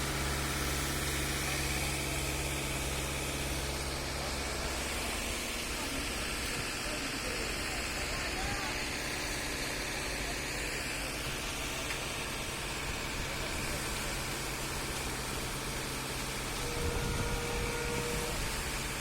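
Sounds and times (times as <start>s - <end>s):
engine hum: 0.0s - 19.0s.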